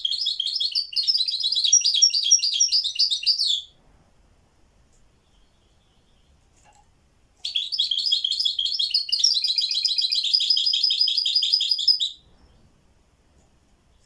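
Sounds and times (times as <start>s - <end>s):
songbird trilling: 0.0s - 3.7s, 7.4s - 12.2s.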